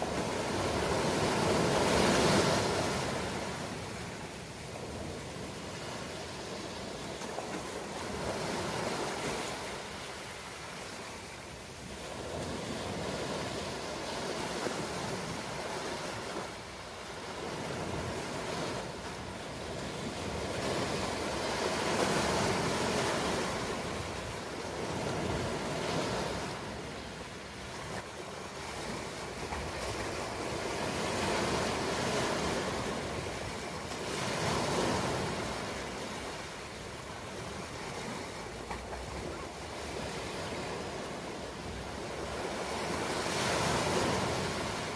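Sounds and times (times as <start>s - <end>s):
ocean waves washing in: 0.0s - 44.9s.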